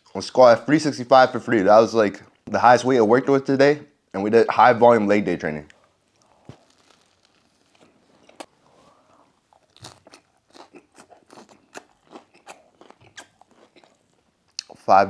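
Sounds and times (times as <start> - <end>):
mouth clicks and smacks: 9.6 - 14.9.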